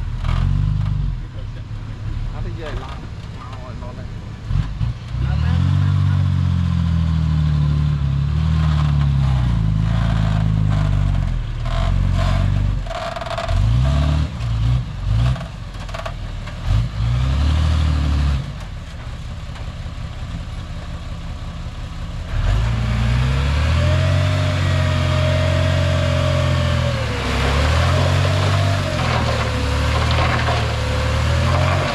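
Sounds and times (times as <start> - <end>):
bulldozer diesel engine: 0.0 - 31.9
clattering: 27.8 - 31.9.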